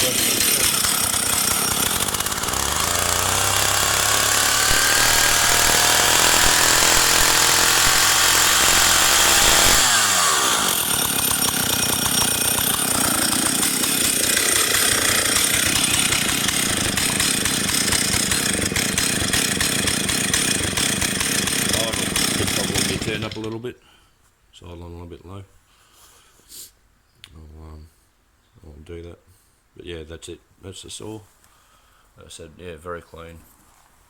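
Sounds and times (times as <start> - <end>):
chainsaw revving and idling: 0.0 - 23.6.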